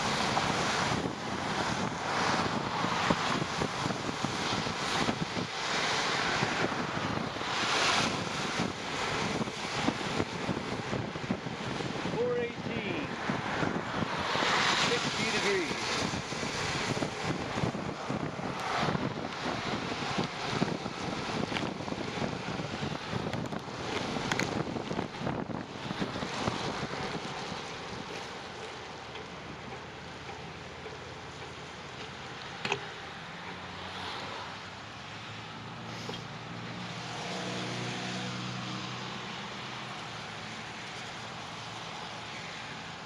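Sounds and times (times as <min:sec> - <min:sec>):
wind buffeting microphone: 0:00.0 - 0:33.8
low engine hum: 0:00.0 - 0:43.0.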